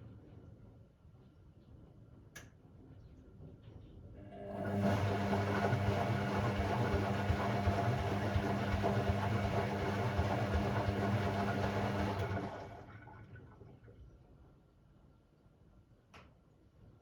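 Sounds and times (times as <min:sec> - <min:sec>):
washing machine churning: 0:04.2 - 0:13.8.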